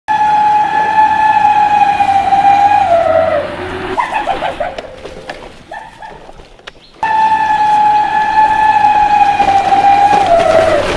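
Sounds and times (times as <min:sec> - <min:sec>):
loud horn-like tone: 0:00.1 - 0:04.0, 0:07.0 - 0:10.9.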